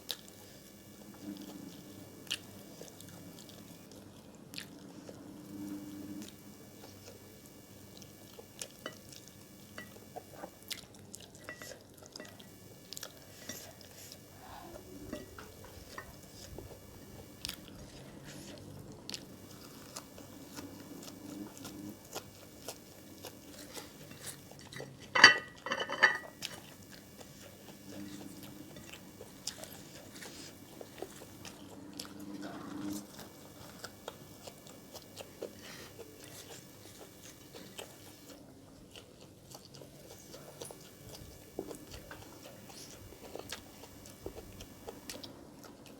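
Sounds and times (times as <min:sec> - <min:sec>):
biting and chewing food: 0:00.0 - 0:25.1, 0:26.2 - 0:45.9
dishes clicking and scraping: 0:24.8 - 0:26.5.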